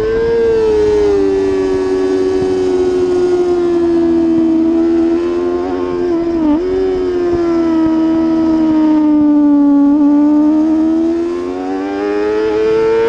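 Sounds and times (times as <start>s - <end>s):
motorcycle engine at high revs: 0.0s - 13.0s.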